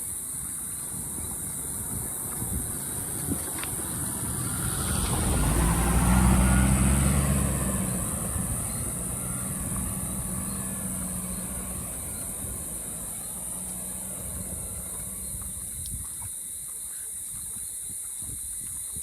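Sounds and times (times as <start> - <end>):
vehicle driving past: 2.2 - 15.7.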